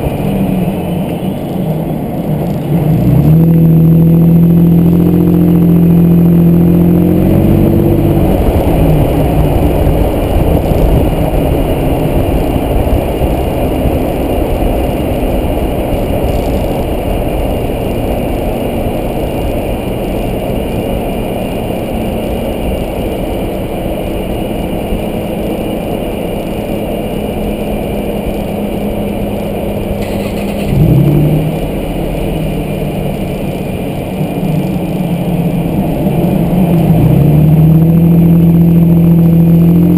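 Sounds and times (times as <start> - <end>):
pickup truck engine driving: 0.0 - 39.9.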